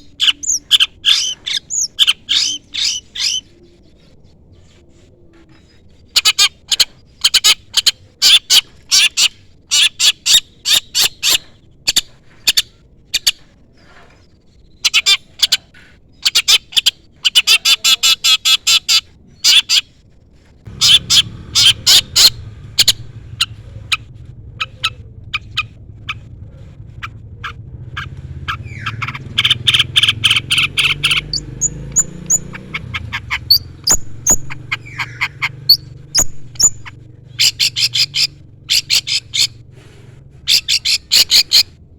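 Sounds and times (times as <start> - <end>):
shrike chattering calls: 0.0 - 3.7, 20.7 - 41.8
steady low hum: 20.2 - 41.9.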